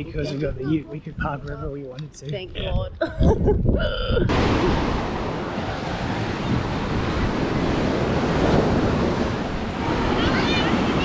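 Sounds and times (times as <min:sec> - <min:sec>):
wind buffeting microphone: 0:00.0 - 0:11.0
ocean surf washing onto beach: 0:04.3 - 0:11.0.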